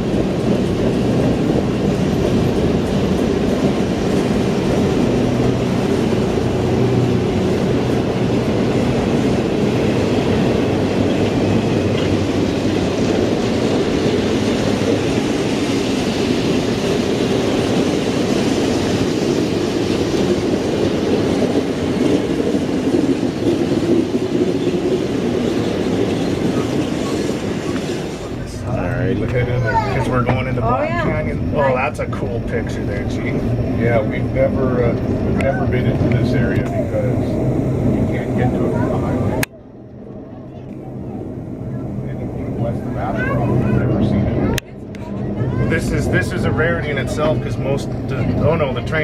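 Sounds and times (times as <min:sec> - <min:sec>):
train wheels rumbling on rails: 0:00.0 - 0:49.0.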